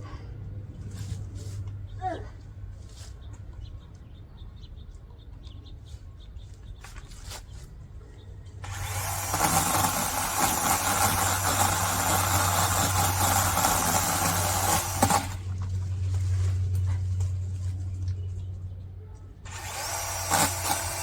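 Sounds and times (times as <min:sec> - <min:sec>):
chainsaw running: 0:08.6 - 0:15.7, 0:19.4 - 0:21.0.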